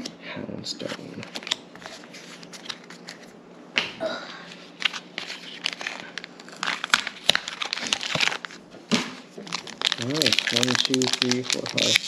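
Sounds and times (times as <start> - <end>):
foil wrapper crinkling: 4.8 - 8.6, 9.5 - 12.0.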